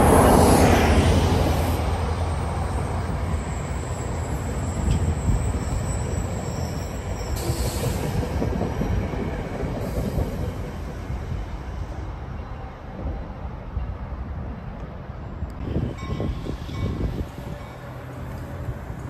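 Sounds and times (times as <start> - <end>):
train cars rumbling over rails: 0.0 - 19.0.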